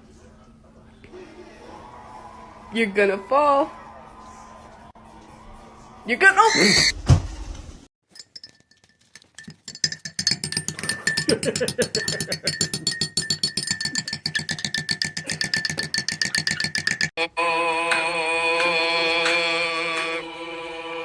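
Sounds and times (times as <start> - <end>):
rapid percussive tapping: 8.5 - 17.1.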